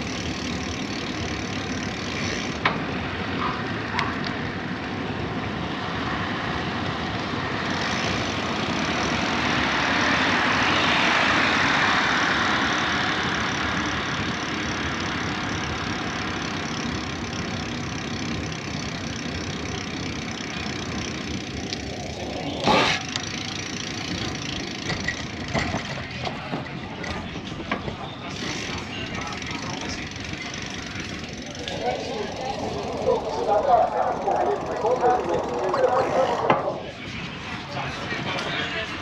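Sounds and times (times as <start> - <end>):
bicycle tyre noise: 0.0 - 5.0, 5.6 - 37.2
rushing wind: 2.6 - 16.3.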